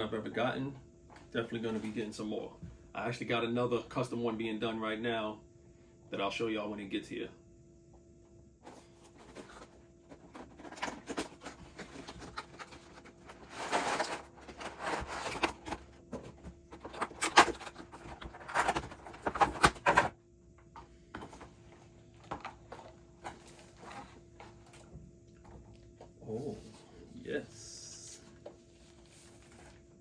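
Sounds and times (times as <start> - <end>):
faint steady hum: 0.0 - 30.0
packaging rustling: 8.7 - 20.1.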